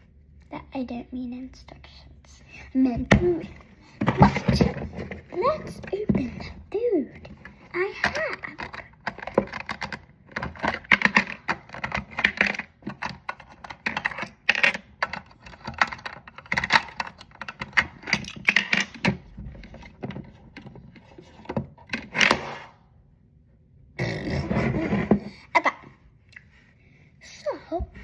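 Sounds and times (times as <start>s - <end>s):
plastic toy pieces clattering: 7.3s - 22.3s.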